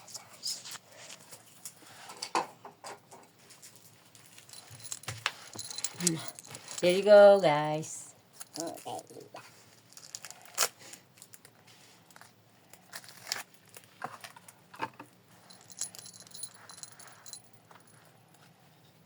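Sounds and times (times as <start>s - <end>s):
crinkly hiss: 9.6s - 11.5s.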